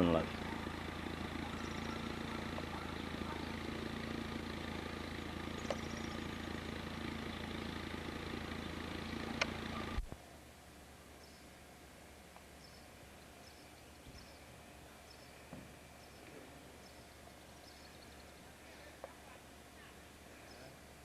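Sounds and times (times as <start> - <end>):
vehicle engine idling: 0.0 - 10.2
quiet outdoor background: 0.0 - 21.0.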